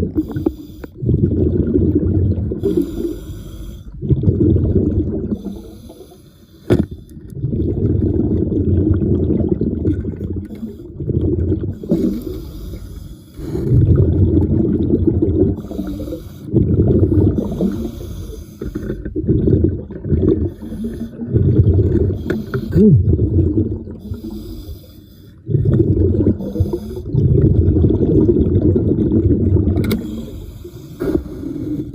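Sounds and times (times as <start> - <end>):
underwater bubbles from breathing: 0.0 - 31.9.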